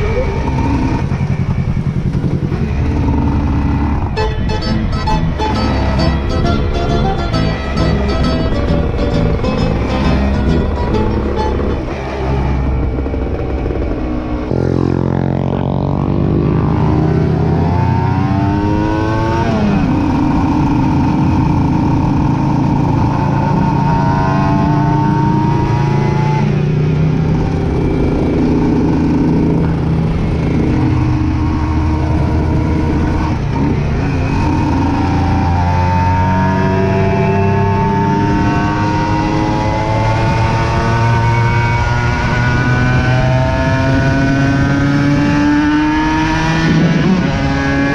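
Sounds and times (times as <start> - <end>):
motorcycle engine shifting gears: 0.0 - 47.9.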